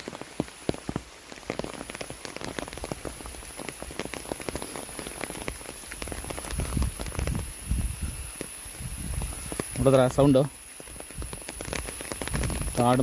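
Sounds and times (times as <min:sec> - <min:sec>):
forest insects buzzing: 0:00.0 - 0:13.0
large raindrops ticking: 0:00.0 - 0:13.0.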